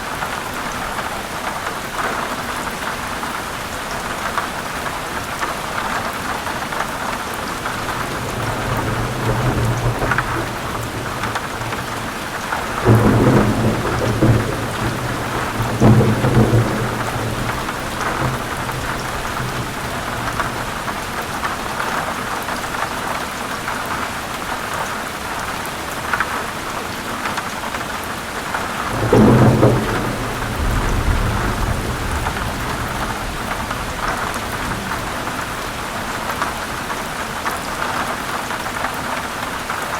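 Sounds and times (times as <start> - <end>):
heavy rain: 0.0 - 39.9
thunder rumbling: 7.6 - 21.6, 28.6 - 36.1.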